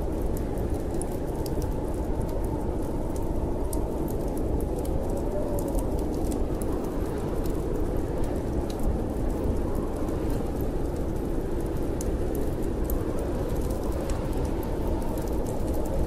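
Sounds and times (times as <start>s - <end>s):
snowstorm wind rumbling: 0.0s - 16.0s
wood fire crackling: 0.0s - 16.0s.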